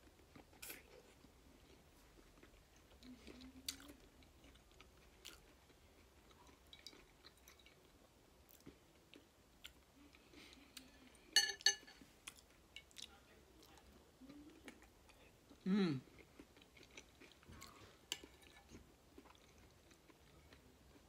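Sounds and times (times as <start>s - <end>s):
soft chewing and mouth sounds: 0.0s - 21.0s
spoon clinking on glass: 11.4s - 12.0s.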